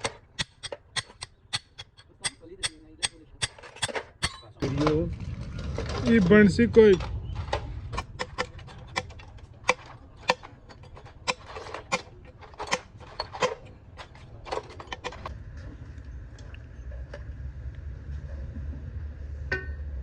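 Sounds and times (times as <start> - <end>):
metallic tool clicks: 0.0 - 4.6
steady low rumble: 4.2 - 12.4, 15.2 - 20.0.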